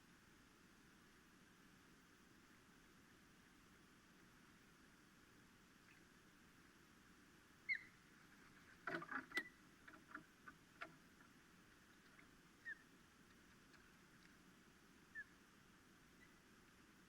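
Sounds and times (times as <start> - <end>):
clicks and rustles: 8.4 - 12.4.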